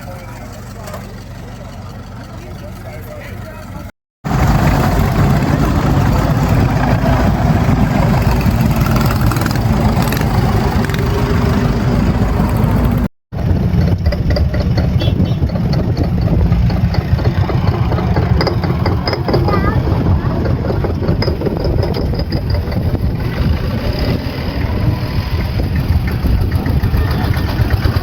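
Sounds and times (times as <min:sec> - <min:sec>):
vehicle engines idling: 0:00.0 - 0:28.0.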